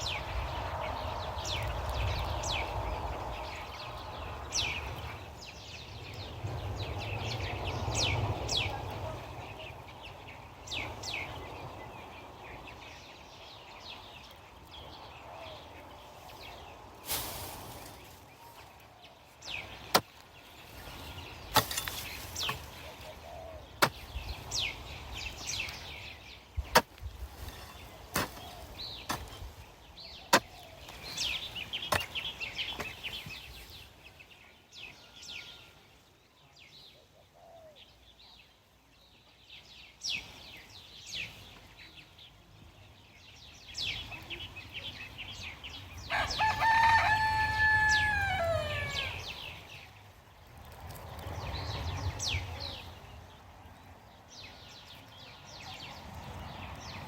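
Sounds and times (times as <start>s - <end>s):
small birds chirping: 0.0s - 57.0s
rooster crowing: 46.1s - 49.3s.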